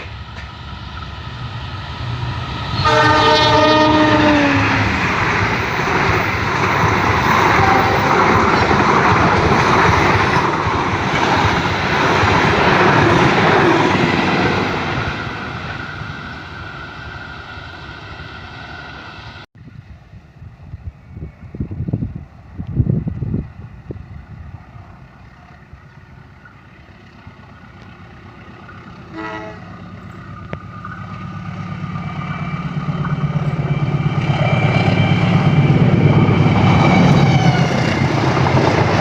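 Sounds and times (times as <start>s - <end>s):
train rushing past: 0.0s - 39.0s
train horn: 2.8s - 4.9s, 7.4s - 8.3s, 29.1s - 29.8s.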